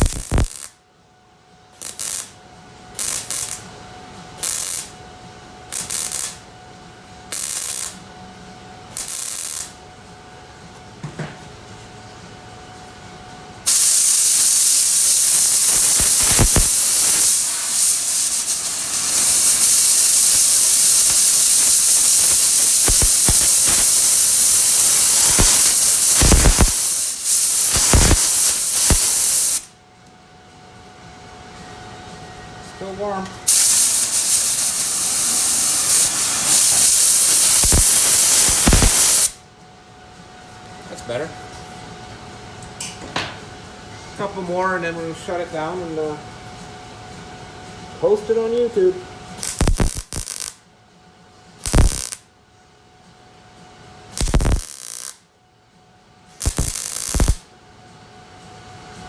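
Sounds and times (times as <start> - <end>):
compressed air hissing: 0.0 - 0.6, 13.7 - 29.7, 33.5 - 39.4, 56.4 - 57.4
welding bursts: 0.0 - 0.8, 1.8 - 2.4, 3.0 - 3.7, 4.4 - 5.0, 5.7 - 6.4, 7.3 - 8.0, 8.9 - 9.8, 13.7 - 29.7, 33.5 - 39.4, 49.4 - 50.6, 51.6 - 52.2, 54.2 - 55.2, 56.4 - 57.4.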